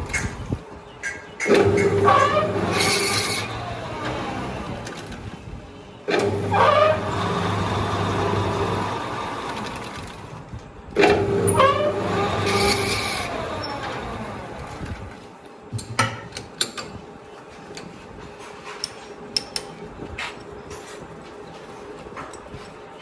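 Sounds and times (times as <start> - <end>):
lathe motor winding down: 1.5 - 5.4, 6.1 - 10.4, 11.0 - 15.1.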